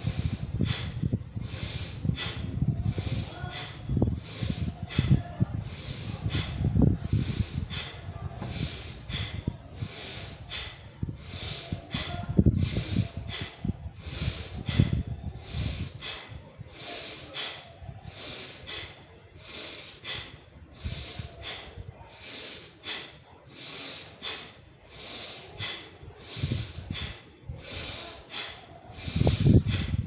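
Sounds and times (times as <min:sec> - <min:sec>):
sharp nasal breaths: 0:00.0 - 0:30.0.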